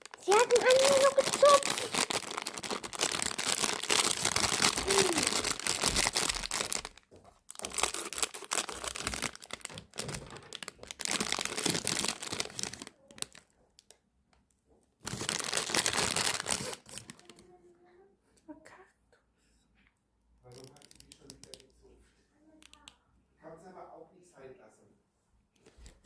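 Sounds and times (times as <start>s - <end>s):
plastic packaging crinkling and tearing: 0.0s - 14.0s, 15.0s - 17.4s.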